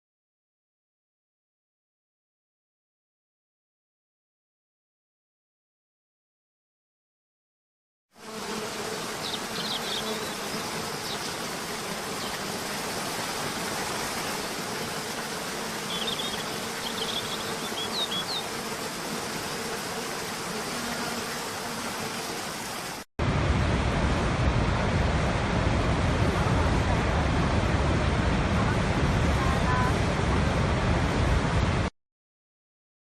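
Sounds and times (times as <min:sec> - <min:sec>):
deeper water rush: 0:08.8 - 0:20.5, 0:21.4 - 0:31.9
falling water rushing: 0:09.0 - 0:20.5, 0:21.2 - 0:31.9
low hum: 0:23.2 - 0:29.3.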